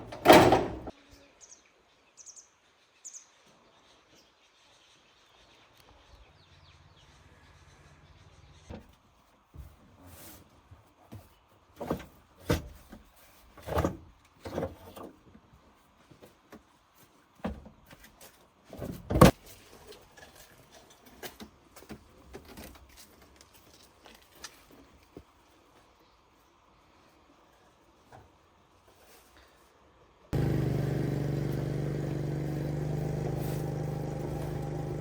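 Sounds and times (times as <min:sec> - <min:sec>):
knocks and clunks of handling: 0:00.0 - 0:00.9.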